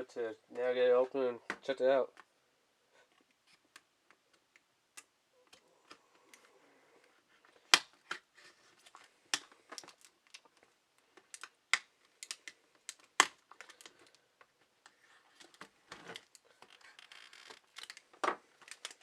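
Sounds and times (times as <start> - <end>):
plastic and cardboard packaging crackling: 14.8 - 19.0.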